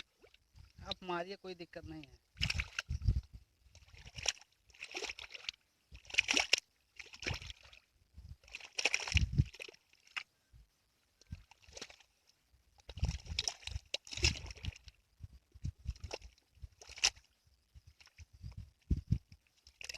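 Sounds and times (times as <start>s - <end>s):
pond water sloshing and splashing: 0.0s - 10.4s, 11.0s - 19.9s.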